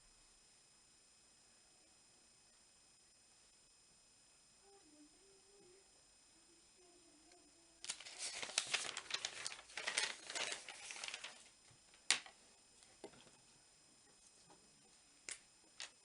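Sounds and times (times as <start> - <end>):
crinkling and rustling: 7.8 - 13.4.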